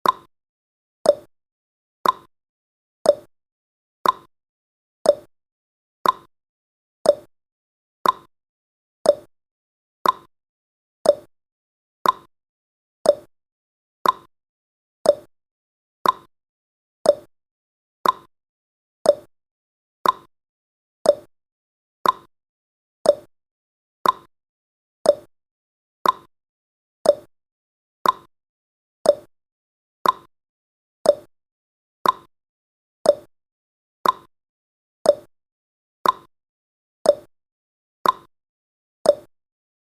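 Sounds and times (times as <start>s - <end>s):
timer ticks: 0.0s - 0.3s, 1.0s - 1.3s, 2.0s - 2.3s, 3.0s - 3.3s, 4.0s - 4.3s, 5.0s - 5.3s, 6.0s - 6.3s, 7.0s - 7.3s, 8.0s - 8.3s, 9.0s - 9.3s, 10.0s - 10.3s, 11.0s - 11.3s, 12.0s - 12.3s, 13.0s - 13.3s, 14.0s - 14.3s, 15.0s - 15.3s, 16.0s - 16.3s, 17.0s - 17.3s, 18.0s - 18.3s, 19.0s - 19.3s, 20.0s - 20.3s, 21.0s - 21.3s, 22.0s - 22.3s, 23.0s - 23.3s, 24.0s - 24.3s, 25.0s - 25.3s, 26.0s - 26.3s, 27.0s - 27.3s, 28.0s - 28.3s, 29.0s - 29.3s, 30.0s - 30.3s, 31.0s - 31.3s, 32.0s - 32.3s, 33.0s - 33.3s, 34.0s - 34.3s, 35.0s - 35.3s, 36.0s - 36.3s, 37.0s - 37.3s, 38.0s - 38.3s, 39.0s - 39.3s.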